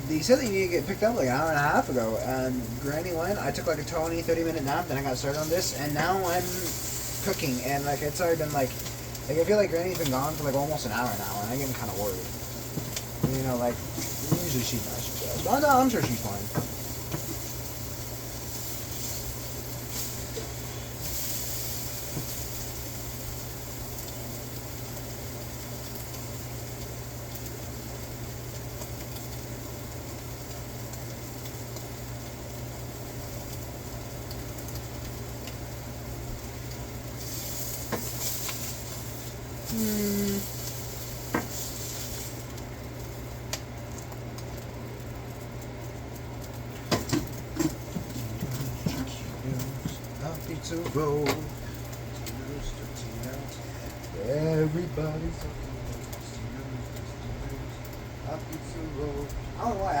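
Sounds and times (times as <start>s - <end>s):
food sizzling in a pan: 0.0s - 60.0s
utensil clicking against pan: 8.4s - 22.4s, 46.2s - 52.4s.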